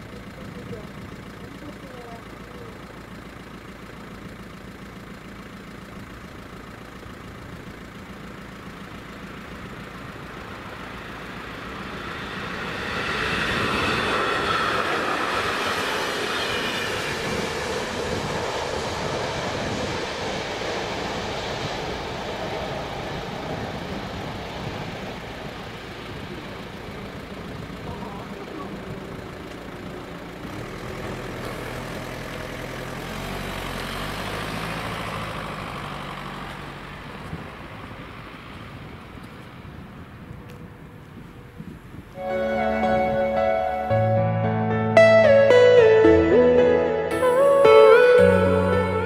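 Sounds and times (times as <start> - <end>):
train passing: 9.8 - 30.3, 42.2 - 49.0.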